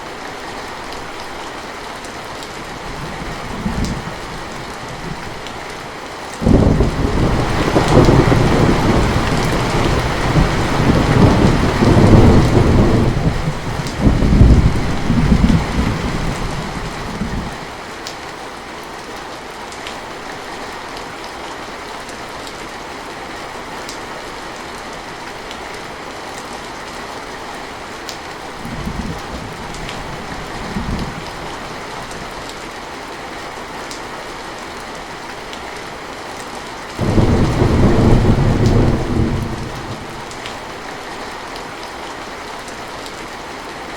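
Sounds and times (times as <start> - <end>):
heavy rain falling: 0.0 - 43.9
thunder rumbling: 6.4 - 17.6, 37.0 - 40.8.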